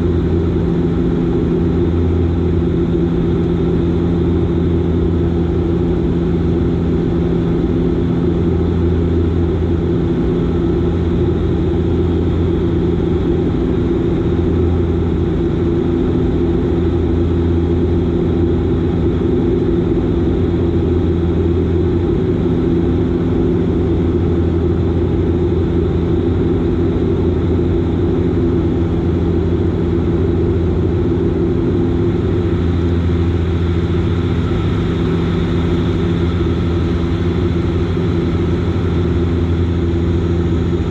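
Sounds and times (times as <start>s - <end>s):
turboprop engines droning in flight: 0.0s - 40.9s.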